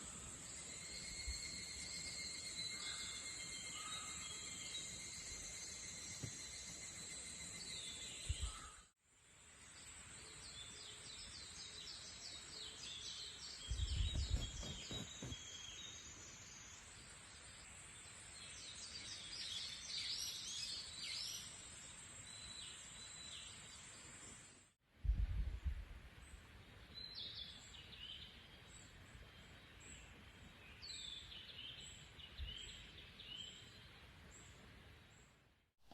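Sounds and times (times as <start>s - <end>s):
birds calling and chirping: 13.7s - 15.4s.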